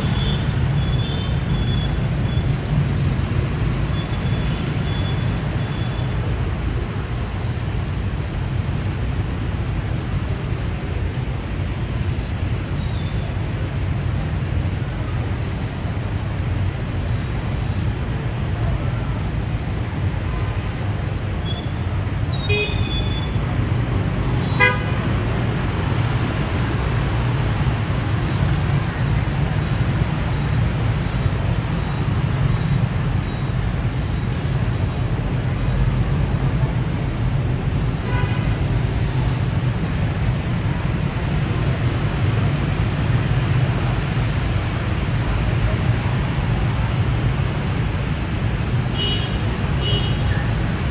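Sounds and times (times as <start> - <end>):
street traffic noise: 0.0 - 50.9
vehicle horn toots: 24.4 - 25.0.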